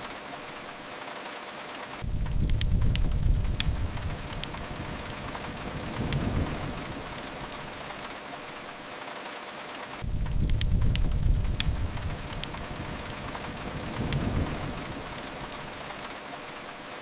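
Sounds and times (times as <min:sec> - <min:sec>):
fireplace crackles: 0:00.0 - 0:17.0
steady rain: 0:00.0 - 0:17.0
low rumble: 0:02.0 - 0:07.8, 0:10.0 - 0:15.9.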